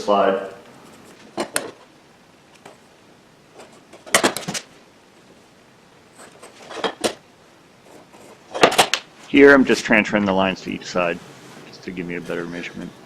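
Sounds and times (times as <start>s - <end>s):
wooden pieces knocking on workbench: 6.6s - 7.2s.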